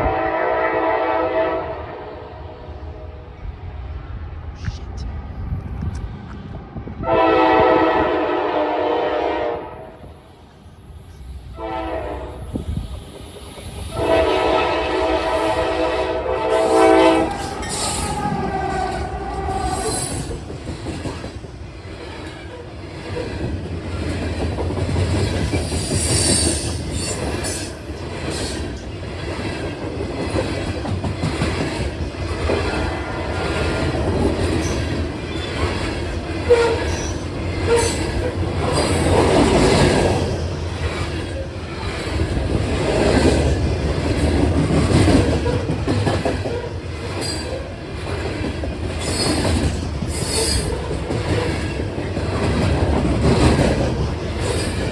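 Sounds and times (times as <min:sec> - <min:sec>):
train horn blast: 0:00.0 - 0:03.3, 0:07.0 - 0:10.0, 0:11.5 - 0:12.8, 0:13.9 - 0:20.2, 0:36.5 - 0:37.0
train wheels rumbling and clicking: 0:09.4 - 0:54.9.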